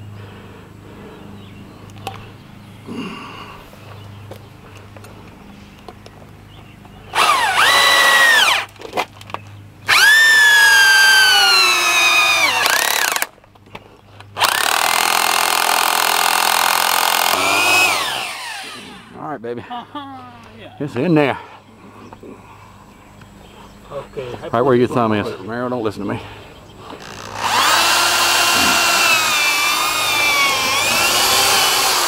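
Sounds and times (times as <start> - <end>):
cordless drill into sheet metal: 7.1 - 8.7, 9.9 - 13.3, 14.4 - 19.1, 27.0 - 32.0.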